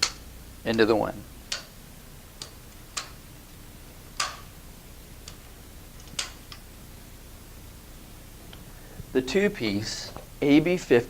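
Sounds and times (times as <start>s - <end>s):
paddle sections clicking together: 4.2s - 4.5s.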